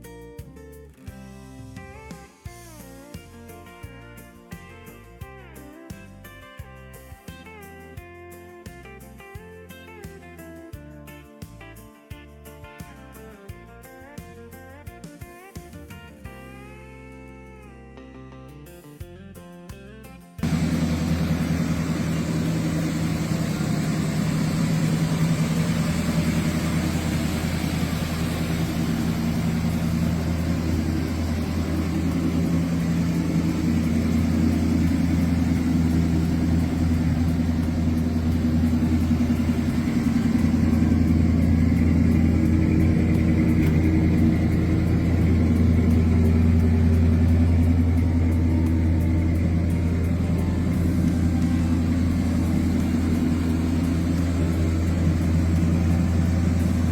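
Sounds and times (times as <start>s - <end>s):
car engine droning: 20.4s - 56.9s.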